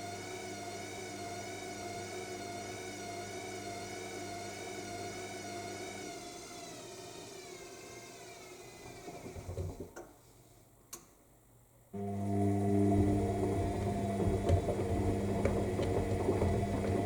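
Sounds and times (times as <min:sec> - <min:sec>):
washing machine spin whine: 0:00.0 - 0:10.0, 0:12.0 - 0:17.0.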